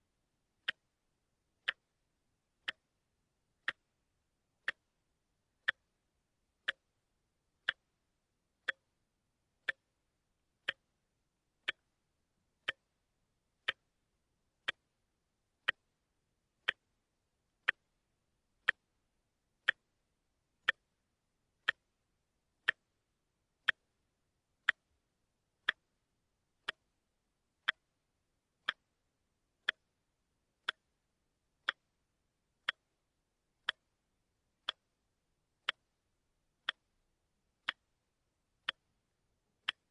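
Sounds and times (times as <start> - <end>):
watch ticking: 0.5 - 1.0, 1.6 - 25.0, 25.6 - 28.0, 28.6 - 39.9.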